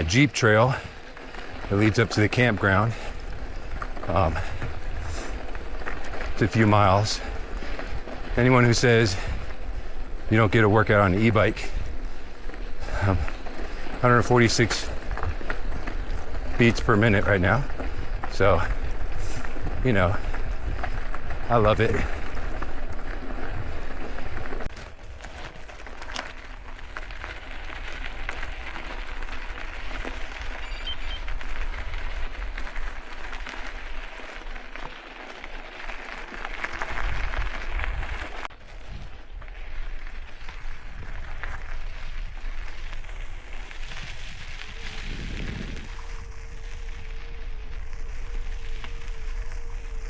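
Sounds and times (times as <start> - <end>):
bike tyres rolling on dirt: 0.0 - 50.0
wind on microphone: 43.4 - 50.0.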